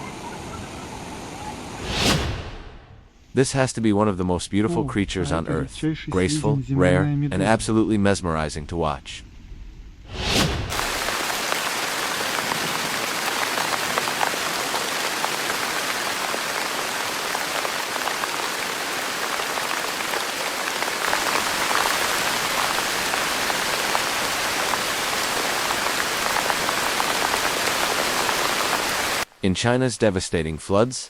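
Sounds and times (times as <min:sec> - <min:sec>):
heavy rain falling: 0:10.7 - 0:29.3.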